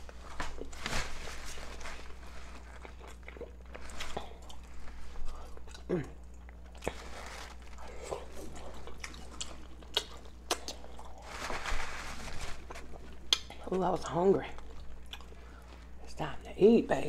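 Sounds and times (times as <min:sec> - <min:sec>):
wet chewing mouth smacks: 0:08.5 - 0:10.9.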